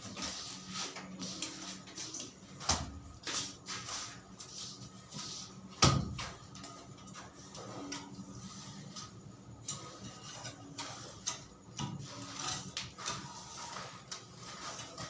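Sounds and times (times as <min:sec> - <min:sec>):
scraping and rustling: 0:03.2 - 0:15.0.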